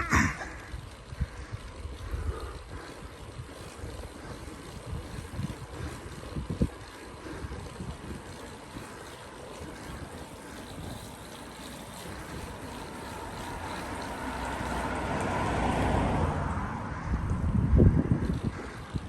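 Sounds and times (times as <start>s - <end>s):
vehicle passing: 0.0s - 6.4s, 10.7s - 19.0s
wind buffeting microphone: 0.0s - 19.0s.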